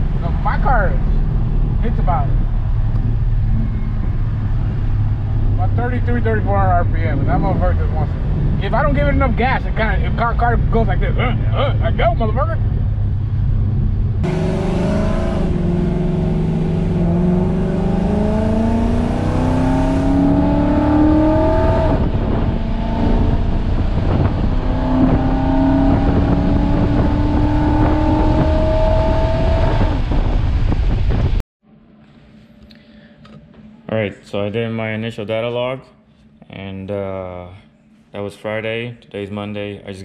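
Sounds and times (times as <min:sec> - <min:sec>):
car engine accelerating hard: 0:00.0 - 0:31.4.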